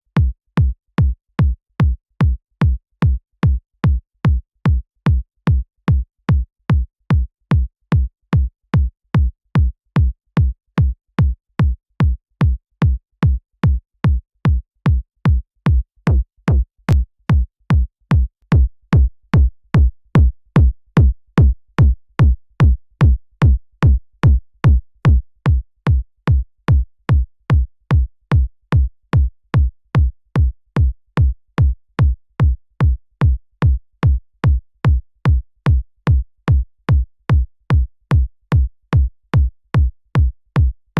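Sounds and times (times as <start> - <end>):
electronic kick drum loop: 15.3 - 40.9.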